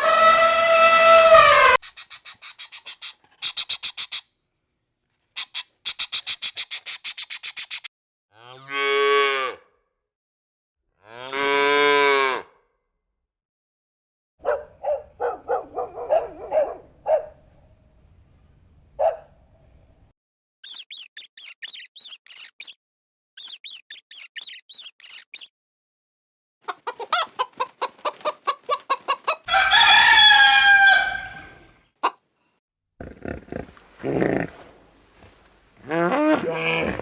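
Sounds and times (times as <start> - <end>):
hen clucking: 1.8 - 4.2, 5.4 - 7.9, 26.6 - 32.2
high rapid chirping: 1.8 - 4.2, 5.4 - 7.9, 20.6 - 22.8, 23.4 - 25.5
rooster crowing: 29.4 - 31.6.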